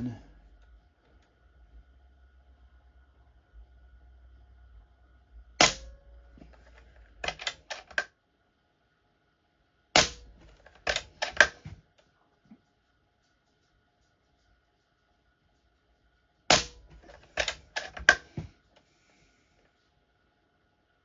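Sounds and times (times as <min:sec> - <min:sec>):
air rifle shots: 0:05.6 - 0:06.2, 0:10.0 - 0:11.7, 0:16.5 - 0:18.4
rifle action clicks: 0:07.2 - 0:08.1, 0:10.0 - 0:11.6, 0:16.5 - 0:18.3.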